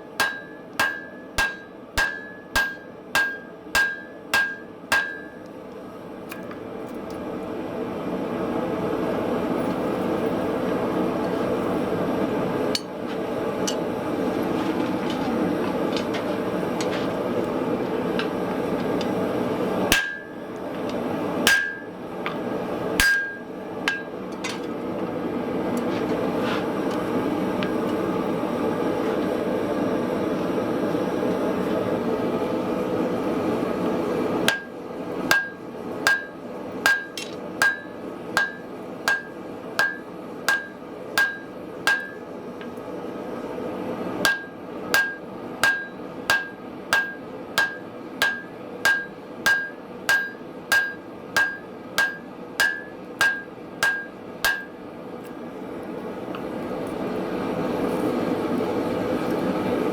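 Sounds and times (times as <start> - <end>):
hammer blows on anvil: 0.2 - 5.4, 19.9 - 22.4, 23.0 - 24.7, 35.3 - 42.2, 44.3 - 54.8.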